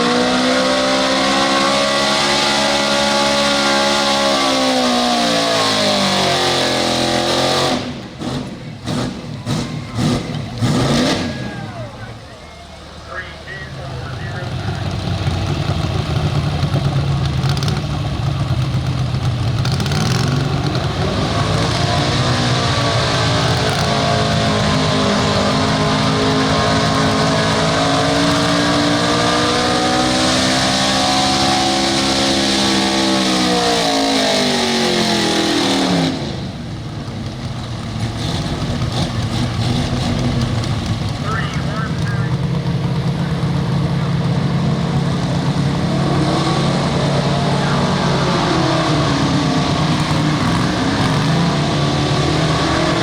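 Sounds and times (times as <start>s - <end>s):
pickup engine revving hard: 0.0s - 12.0s, 19.6s - 36.6s, 44.2s - 53.0s.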